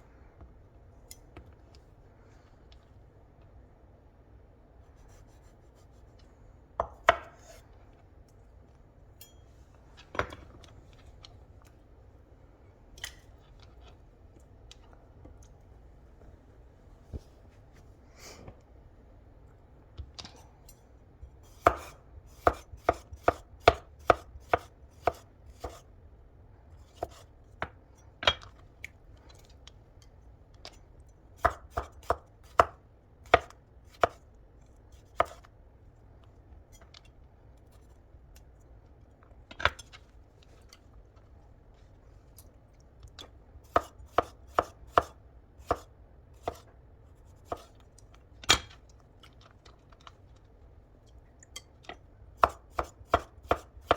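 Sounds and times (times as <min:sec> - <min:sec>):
knife chopping on cutting board: 0:06.8 - 0:07.6, 0:21.5 - 0:25.8, 0:26.9 - 0:27.8, 0:31.4 - 0:34.2, 0:35.1 - 0:35.5, 0:43.7 - 0:46.7, 0:47.4 - 0:47.7, 0:52.4 - 0:53.9.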